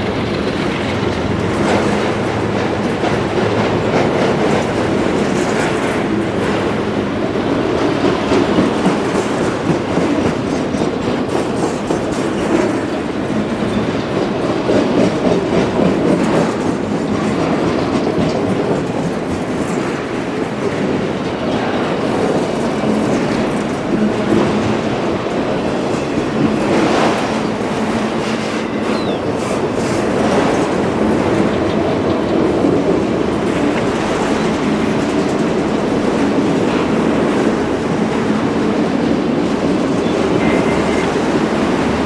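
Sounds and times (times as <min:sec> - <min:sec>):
freight train rolling past: 0:00.0 - 0:42.0
wheels clacking over rail joints: 0:00.0 - 0:42.0.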